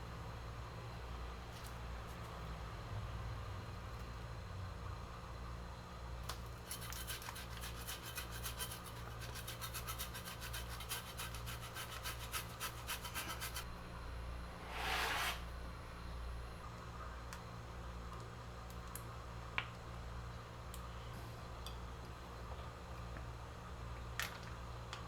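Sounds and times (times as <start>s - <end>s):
food rasping on hand grater: 6.6s - 13.6s, 14.6s - 15.4s.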